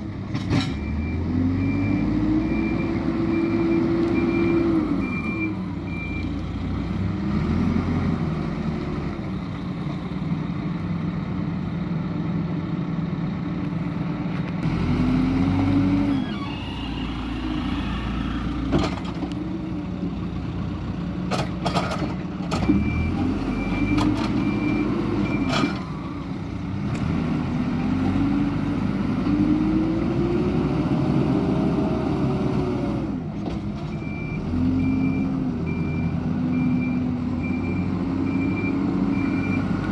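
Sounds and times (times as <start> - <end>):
diesel engine revving: 0.0 - 39.9
reversing alarm beeps: 0.8 - 6.3, 22.8 - 25.7, 34.0 - 39.7.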